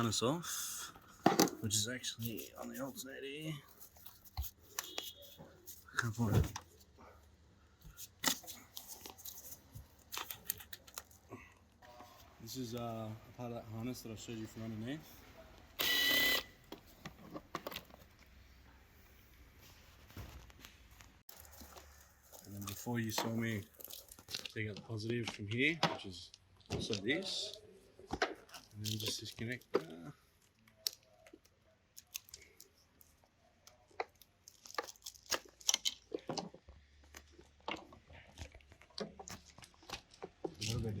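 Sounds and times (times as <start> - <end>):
wiring harness clicking and rattling: 38.8 - 41.0.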